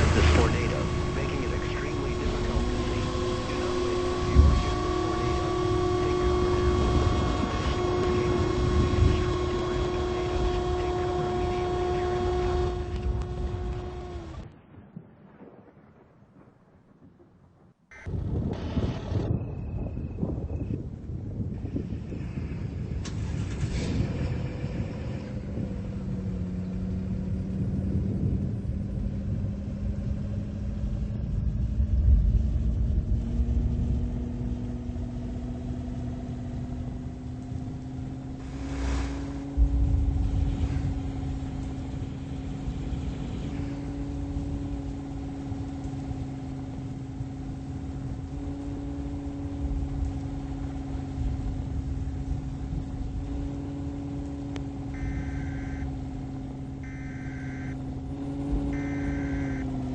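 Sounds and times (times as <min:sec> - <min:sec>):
car engine hum: 0:00.0 - 0:14.5, 0:18.0 - 0:59.9
road rumble: 0:00.0 - 0:16.1, 0:17.9 - 0:59.9.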